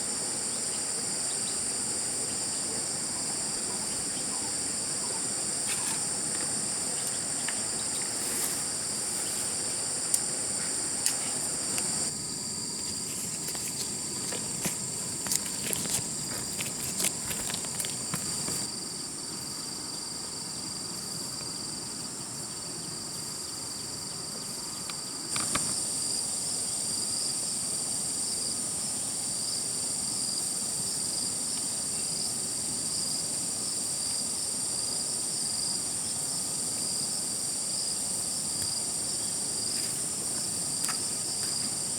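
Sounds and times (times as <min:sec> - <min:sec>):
insects shrilling: 0:00.0 - 0:18.8.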